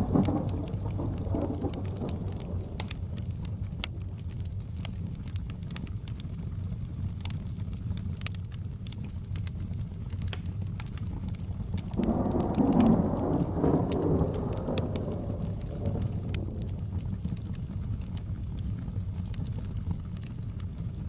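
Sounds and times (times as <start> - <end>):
thunder rolling: 0.0 - 3.8, 11.6 - 18.0
fireplace crackling: 0.0 - 21.0
steady rain: 0.0 - 21.0.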